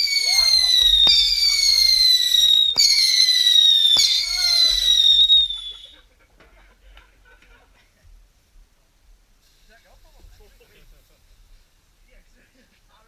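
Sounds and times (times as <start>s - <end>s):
firework cracks: 0.0s - 6.0s
whistling fireworks: 0.0s - 6.0s.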